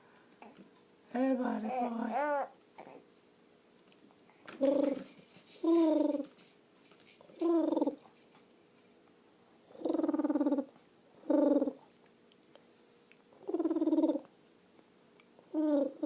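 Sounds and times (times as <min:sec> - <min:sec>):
person making purring noises: 0:04.5 - 0:06.4, 0:07.3 - 0:08.1, 0:09.7 - 0:11.9, 0:13.4 - 0:14.3, 0:15.5 - 0:16.0.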